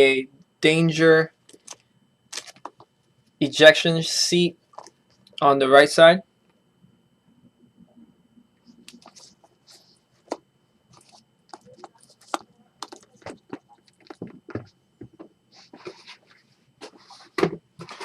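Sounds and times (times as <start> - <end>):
cardboard rustling: 8.9 - 18.0
clicks and knocks of handling: 10.3 - 15.3.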